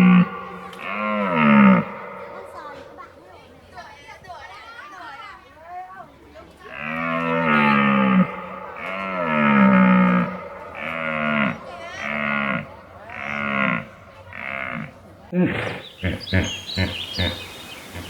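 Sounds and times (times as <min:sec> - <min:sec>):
cow mooing: 0:00.0 - 0:03.2, 0:06.7 - 0:15.0.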